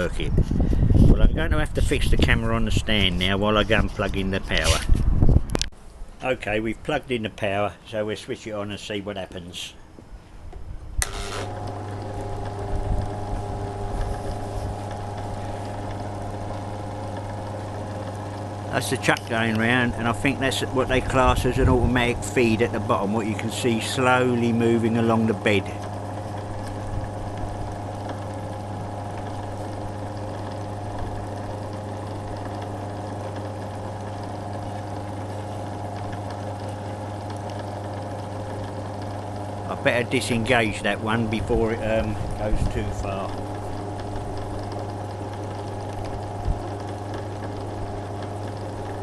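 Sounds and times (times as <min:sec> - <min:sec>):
lathe motor humming: 0:11.0 - 0:49.0.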